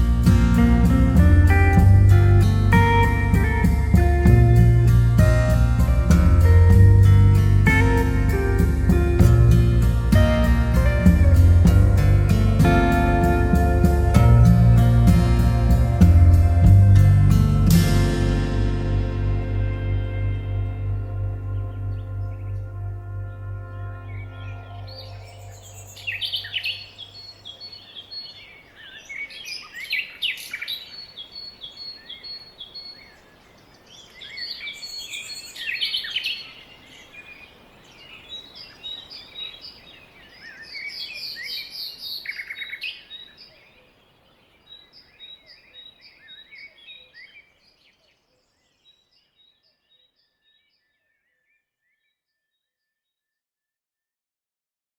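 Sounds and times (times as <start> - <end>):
faint steady hiss: 0.0 - 49.3
songbirds chirping and singing: 19.6 - 52.4.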